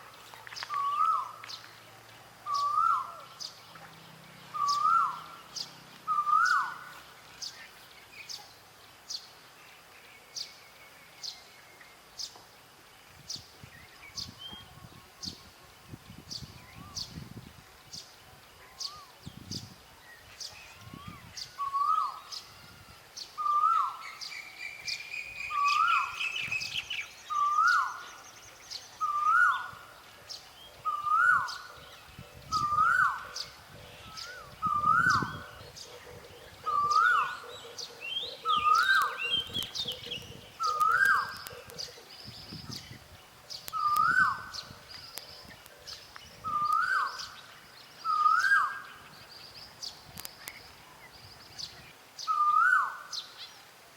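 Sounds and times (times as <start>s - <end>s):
birds chirping and trilling: 2.4s - 53.8s
bird repeating rising call: 34.1s - 42.1s.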